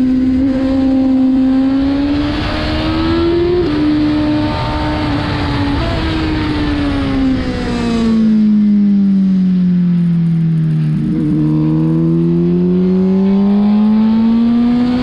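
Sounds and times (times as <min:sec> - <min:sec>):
wind rush: 0:00.0 - 0:09.0
motorcycle engine at high revs: 0:00.0 - 0:15.0.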